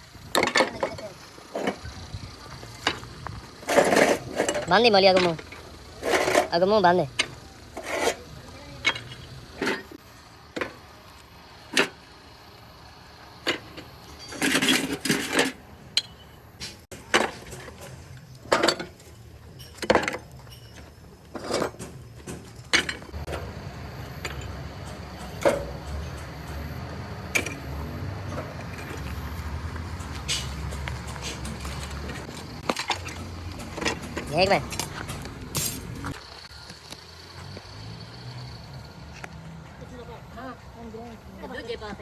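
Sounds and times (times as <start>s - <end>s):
sharp knocks and clanks: 13.4s - 23.5s, 24.1s - 36.3s.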